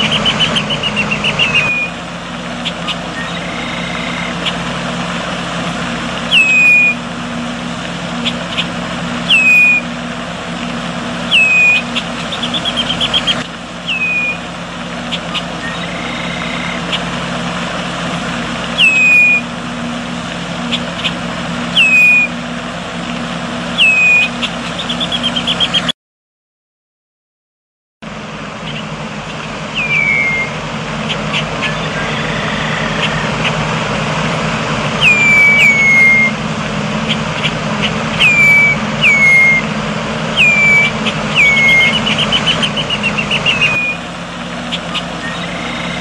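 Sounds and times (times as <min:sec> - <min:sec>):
bird trills: 0:00.0 - 0:05.0, 0:06.2 - 0:07.1, 0:08.1 - 0:10.0, 0:11.2 - 0:17.2, 0:18.7 - 0:19.5, 0:20.6 - 0:22.4, 0:23.7 - 0:25.9, 0:28.6 - 0:33.7, 0:34.9 - 0:36.4, 0:37.0 - 0:39.7, 0:40.3 - 0:46.0
bird calling: 0:00.0 - 0:22.5, 0:23.1 - 0:25.9, 0:28.5 - 0:46.0.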